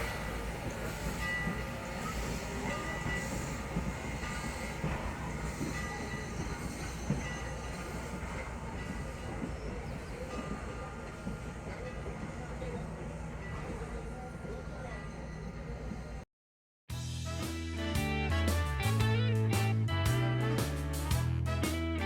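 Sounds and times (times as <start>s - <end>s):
train rumbling: 0.0s - 16.2s.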